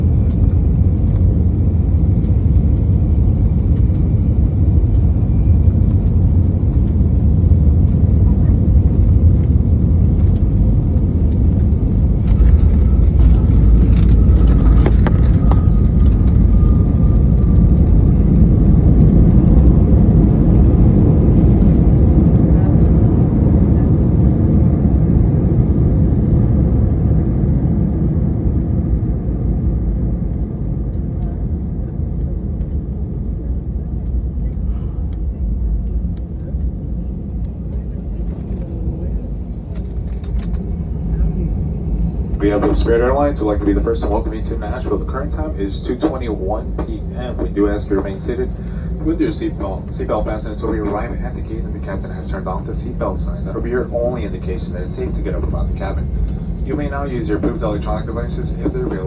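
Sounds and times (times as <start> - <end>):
jet engine and airflow rumble: 0.0 - 59.0
faint falling whine: 11.2 - 19.4.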